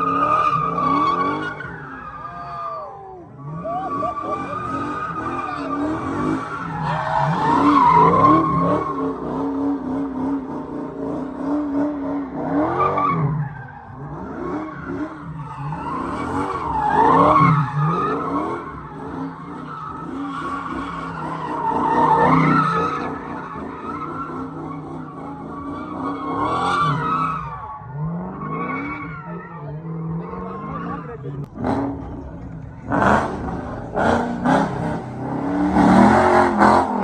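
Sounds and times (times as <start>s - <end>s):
car engine revving: 0.0s - 2.6s, 3.2s - 37.0s
tires squealing and skidding: 0.0s - 37.0s.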